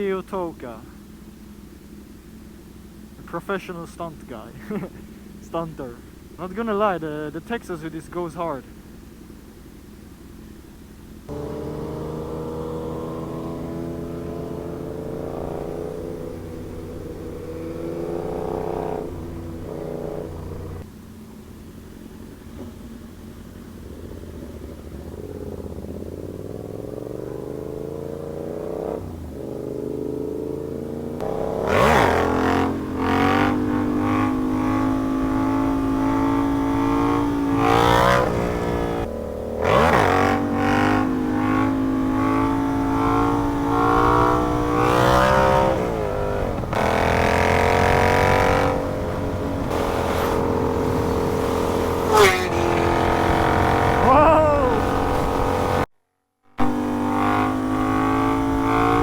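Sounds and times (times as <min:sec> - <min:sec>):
motorcycle engine accelerating: 0:00.0 - 0:55.9, 0:56.5 - 0:59.0
wind rush: 0:48.6 - 0:55.8.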